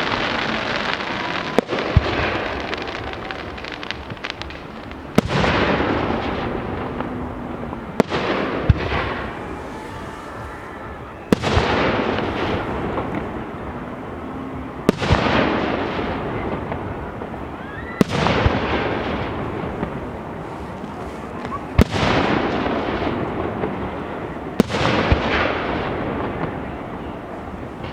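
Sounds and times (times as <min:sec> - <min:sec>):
crackling hissing fireworks tail: 0:00.0 - 0:27.9
fireworks bangs: 0:00.0 - 0:27.9.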